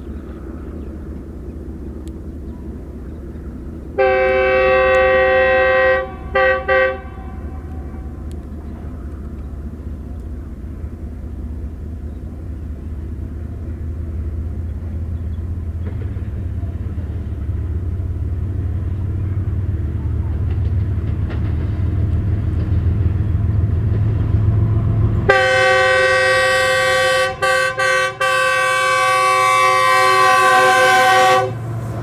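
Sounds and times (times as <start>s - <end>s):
locomotive engine rumbling: 0.0s - 32.0s
locomotive horn: 4.0s - 8.4s, 24.6s - 32.0s.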